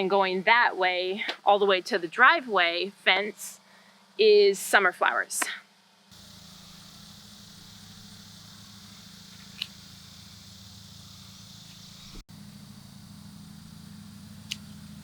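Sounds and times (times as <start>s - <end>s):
low steady hum: 0.0s - 15.0s
insects buzzing: 6.1s - 13.9s.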